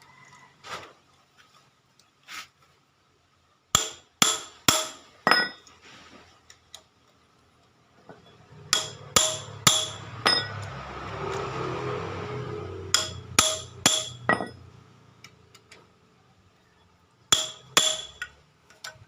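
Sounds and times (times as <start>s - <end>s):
sharp ringing metallic strikes: 8.7s - 10.6s, 12.9s - 14.6s.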